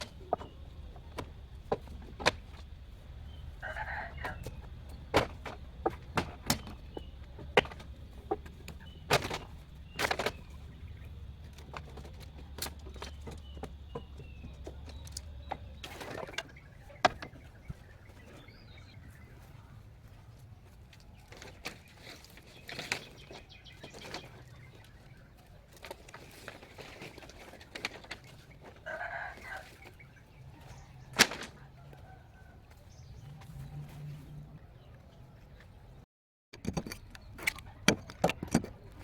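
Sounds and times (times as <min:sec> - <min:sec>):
sharp knocks and clicks: 0:36.5 - 0:39.0.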